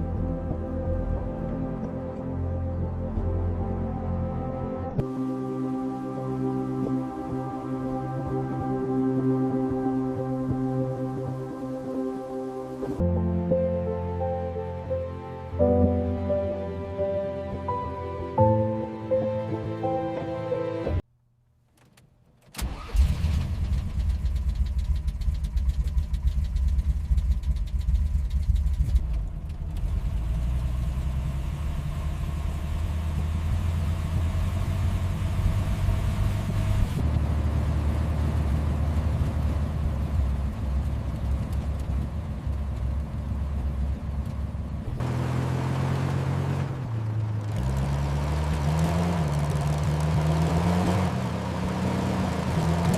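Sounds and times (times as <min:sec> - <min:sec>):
car engine running: 0:22.6 - 0:52.9.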